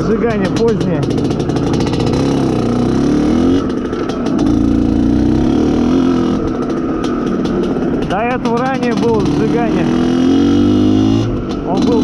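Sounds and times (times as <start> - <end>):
motorcycle engine under throttle: 0.0 - 12.0.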